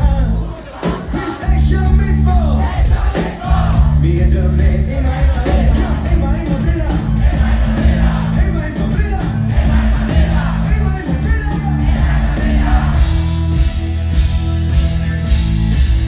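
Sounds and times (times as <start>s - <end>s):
live pop-rock band: 0.0s - 16.0s
crowd shouting: 0.4s - 1.5s, 2.5s - 4.0s, 5.0s - 14.0s.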